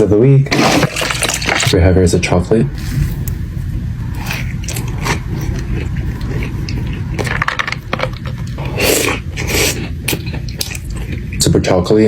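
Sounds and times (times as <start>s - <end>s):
steady low hum: 0.0s - 12.0s
chewing crunchy cookie: 4.1s - 11.8s.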